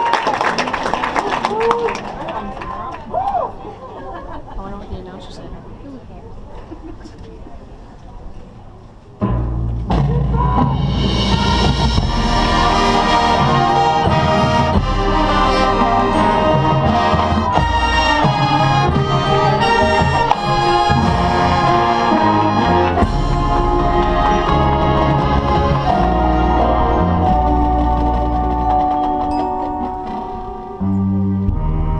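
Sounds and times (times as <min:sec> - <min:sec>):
marching band brass and drums: 0:09.2 - 0:31.9.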